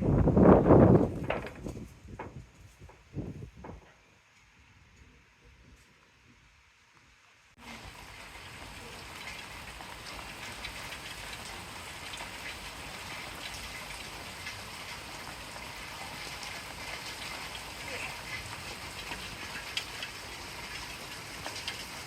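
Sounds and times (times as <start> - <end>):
steady rain falling: 0.0 - 22.0
raindrop hits: 0.1 - 4.0.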